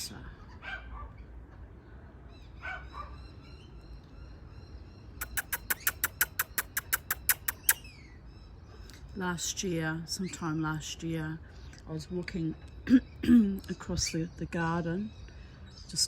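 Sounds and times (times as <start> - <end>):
faint bird twittering: 1.8 - 16.0
rapid sharp bird chips: 5.2 - 7.9.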